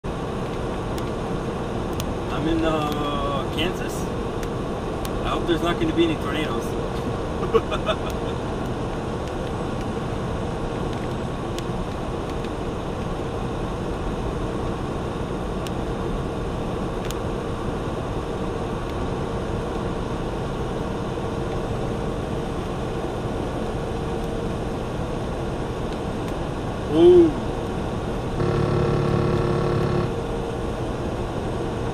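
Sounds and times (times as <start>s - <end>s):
faint steady hum: 0.1s - 31.9s
truck engine running: 27.8s - 31.9s.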